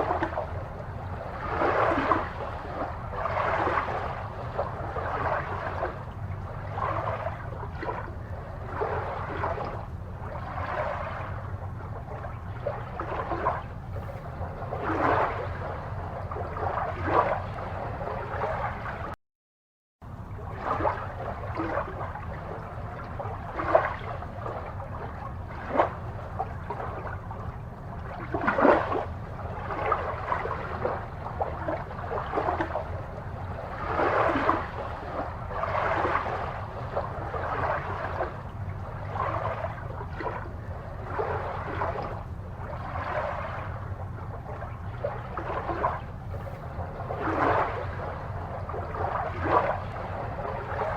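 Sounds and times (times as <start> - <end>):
aquarium water gurgling and bubbling: 0.0 - 19.2, 20.0 - 50.9
steady low hum: 0.0 - 19.2, 20.0 - 50.9.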